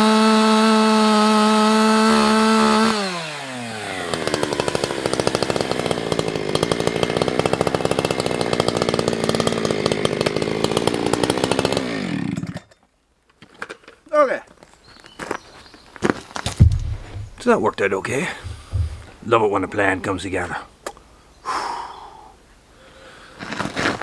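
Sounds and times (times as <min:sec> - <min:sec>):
chainsaw revving and idling: 0:00.0 - 0:12.7, 0:16.5 - 0:20.7.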